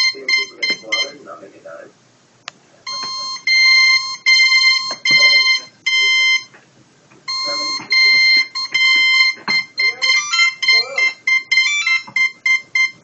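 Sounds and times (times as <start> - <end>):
buzzy electronic beeps: 0.0 - 1.2, 7.3 - 13.0.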